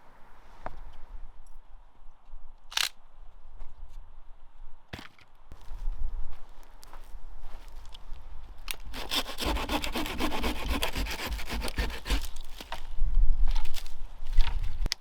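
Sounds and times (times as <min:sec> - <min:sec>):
hand saw cutting wood: 0:08.9 - 0:12.7.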